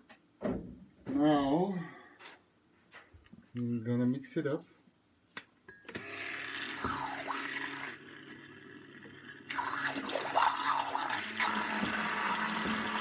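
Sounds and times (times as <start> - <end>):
electric mixer whisking liquid: 6.0 - 13.0.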